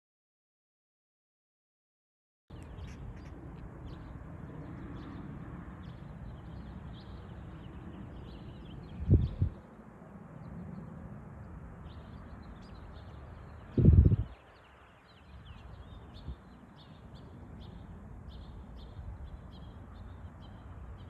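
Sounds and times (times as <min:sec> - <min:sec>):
steady low rumble: 0:02.5 - 0:12.8
birds chirping: 0:02.5 - 0:21.0.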